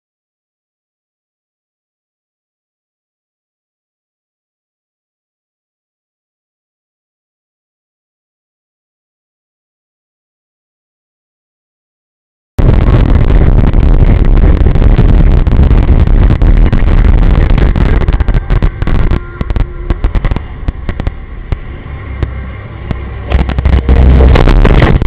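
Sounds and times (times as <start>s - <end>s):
car road and wind noise: 12.6s - 25.0s.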